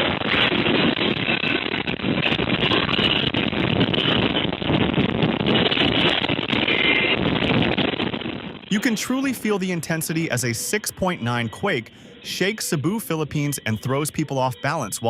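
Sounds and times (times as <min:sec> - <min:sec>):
building rumbling in earthquake: 0:00.0 - 0:08.7.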